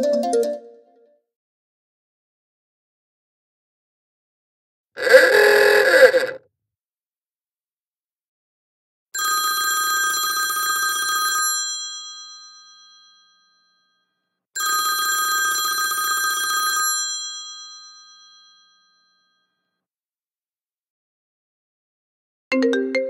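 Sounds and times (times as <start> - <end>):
telephone bell ringtone: 9.2 - 14.0, 14.6 - 19.5.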